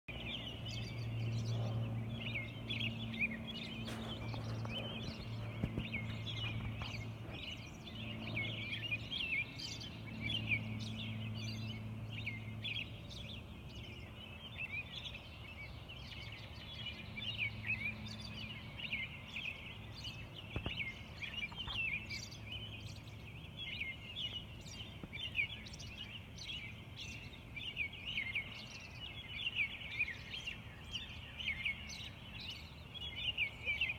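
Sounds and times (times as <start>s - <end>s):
low hum: 0.1s - 14.1s
songbirds chirping and trilling: 0.1s - 33.9s.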